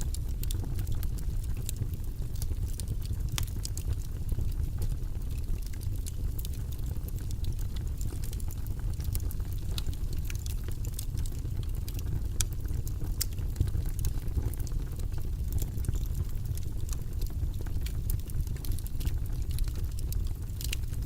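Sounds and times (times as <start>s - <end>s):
low rumbling background noise: 0.0s - 21.0s
small irregular crackles and clicks: 0.0s - 21.0s.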